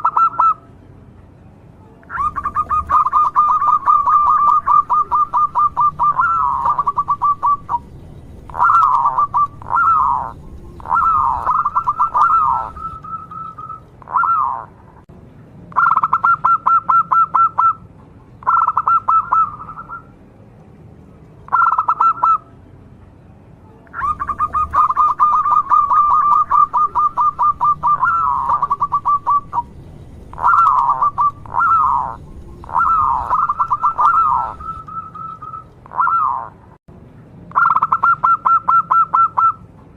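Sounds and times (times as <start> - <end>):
dove cooing: 0.0 - 0.6, 2.1 - 14.8, 18.4 - 20.1, 21.5 - 22.4, 24.0 - 36.6.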